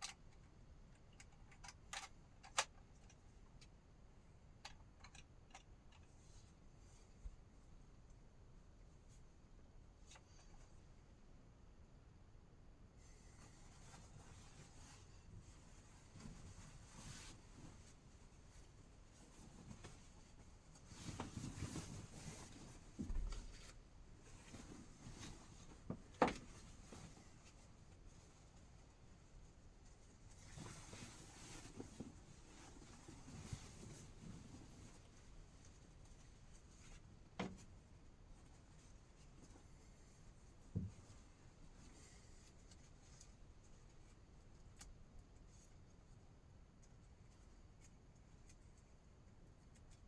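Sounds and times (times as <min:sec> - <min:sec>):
faint rustling: 0:13.0 - 0:50.0.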